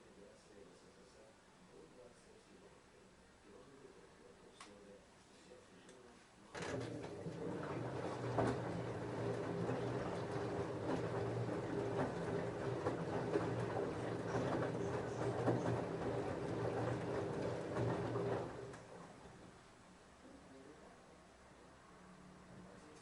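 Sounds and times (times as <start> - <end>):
washing machine drum motor humming: 6.6 - 19.6
wet clothes knocking and sloshing: 6.9 - 18.9.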